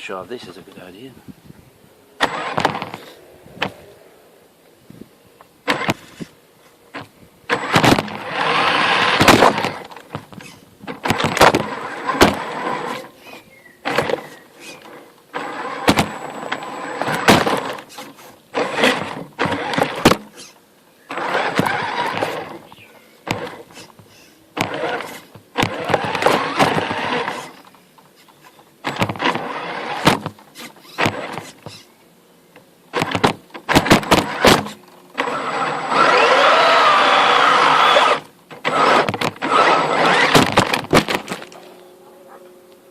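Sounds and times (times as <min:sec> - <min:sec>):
electric motor and gearbox whining: 0:02.2 - 0:04.2, 0:05.4 - 0:06.3, 0:06.9 - 0:24.0, 0:24.6 - 0:31.9, 0:32.9 - 0:42.9
sharp clicks and knocks: 0:32.6 - 0:35.3, 0:38.2 - 0:39.5.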